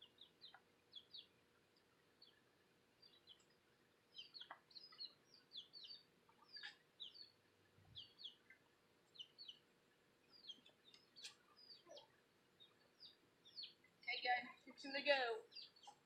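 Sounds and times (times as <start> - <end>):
faint bird chirping: 0.0 - 16.0.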